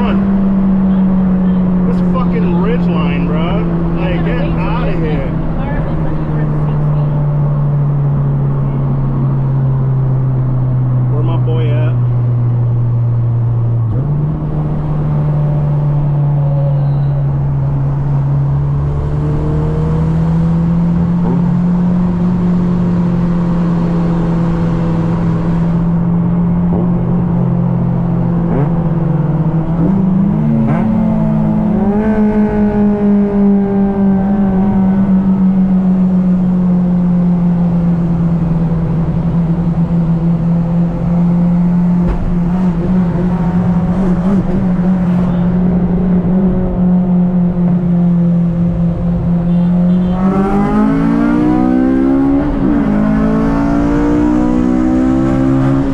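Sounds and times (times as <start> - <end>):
car engine at high revs: 0.0 - 55.9
second car engine passing: 40.4 - 46.5.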